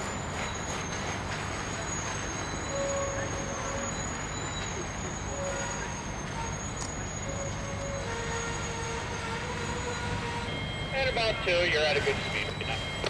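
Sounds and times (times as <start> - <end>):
freight train rumble: 0.0 - 13.0
faint thin squeals: 0.3 - 10.7.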